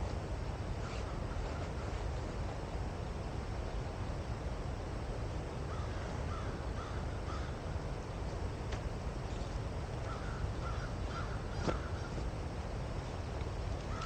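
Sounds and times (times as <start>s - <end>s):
crow cawing: 5.7s - 7.6s, 10.1s - 12.2s.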